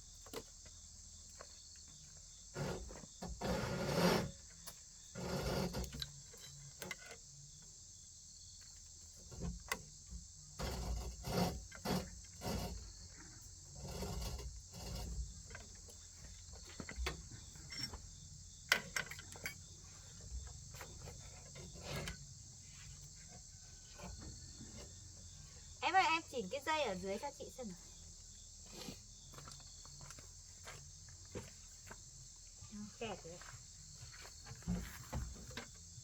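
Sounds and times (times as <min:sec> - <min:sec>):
insect chirring: 0:04.3 - 0:31.0.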